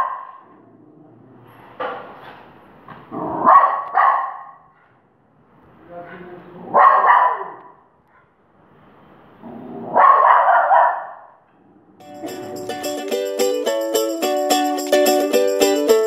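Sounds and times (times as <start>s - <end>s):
dog barking: 0.0s - 0.6s, 3.2s - 5.0s, 6.6s - 8.4s, 9.7s - 11.6s
plucked string music: 12.0s - 16.0s.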